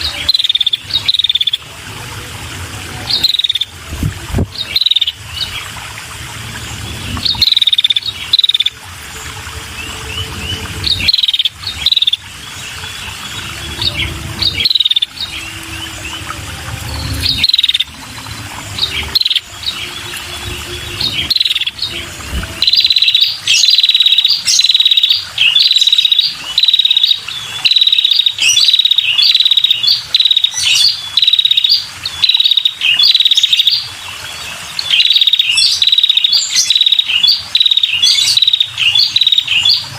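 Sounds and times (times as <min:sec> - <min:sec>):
low background rumble: 0:00.8 - 0:23.6.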